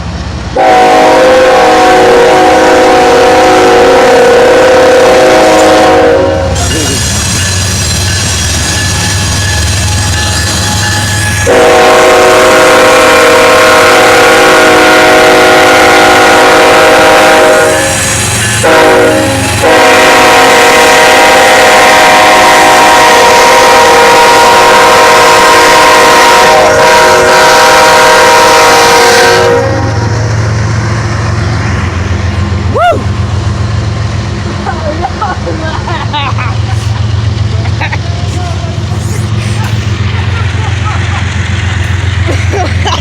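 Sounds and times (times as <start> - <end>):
passing train rumble: 0.0 - 43.0
locomotive air horn blasts: 0.6 - 7.0, 8.9 - 30.2.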